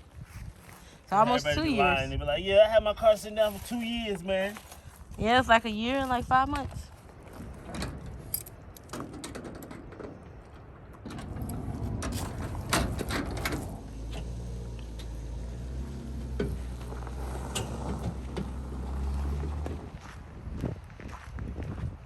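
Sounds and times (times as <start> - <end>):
vehicle engine idling: 11.4 - 20.1.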